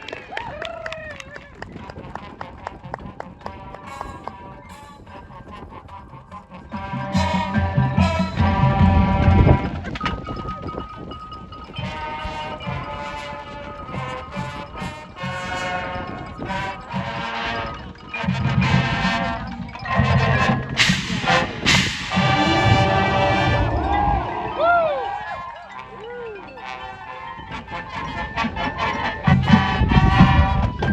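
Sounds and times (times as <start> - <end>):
horns holding chords: 3.4 - 5.1, 6.5 - 10.0, 11.8 - 30.9
drum beats: 6.7 - 10.2, 18.2 - 25.3
sharp percussion hits: 18.2 - 25.7.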